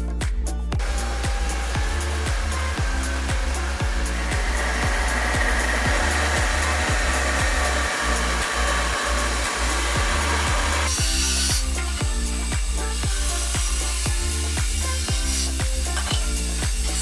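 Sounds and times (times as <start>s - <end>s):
background music with a beat: 0.0s - 17.0s
power tool whirring against wood: 0.8s - 17.0s.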